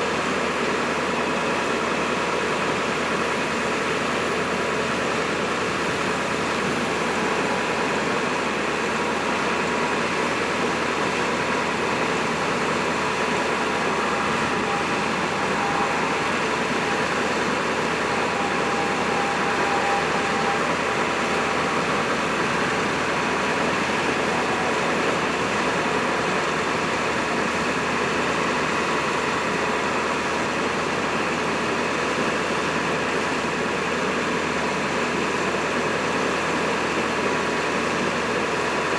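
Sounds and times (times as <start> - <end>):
truck engine running: 0.0 - 38.9
faint higher tone: 10.8 - 30.6.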